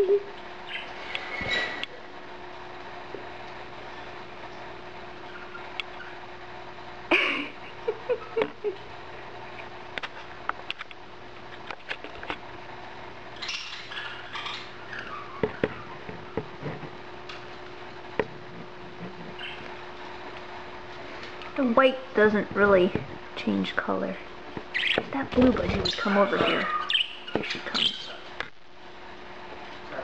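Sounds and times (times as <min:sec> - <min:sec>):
faint steady hum: 0:00.0 - 0:30.0
budgie calls: 0:19.3 - 0:19.7, 0:24.7 - 0:25.0, 0:25.8 - 0:28.2.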